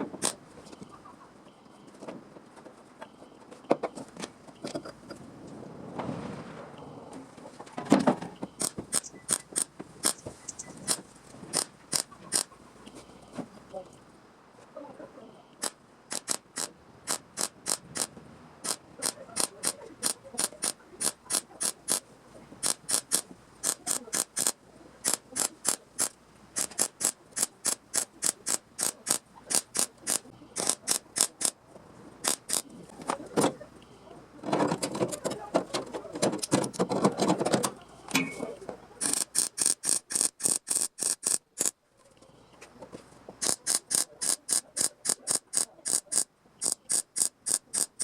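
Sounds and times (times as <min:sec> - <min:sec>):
hand tool clicking on sheet steel: 0:08.6 - 0:12.5, 0:15.6 - 0:22.0, 0:22.6 - 0:31.6, 0:32.2 - 0:32.8, 0:39.0 - 0:41.8, 0:43.4 - 0:48.0.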